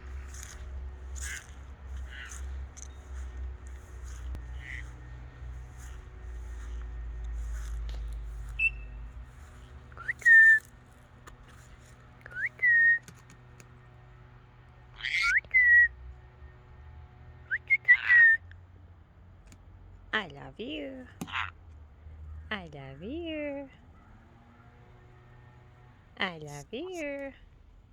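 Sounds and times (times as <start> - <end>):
parrot whistling: 8.6 - 9.0, 10.0 - 10.7, 12.3 - 13.0, 15.0 - 15.9, 17.5 - 18.4
short harsh parrot noises: 15.0 - 15.9.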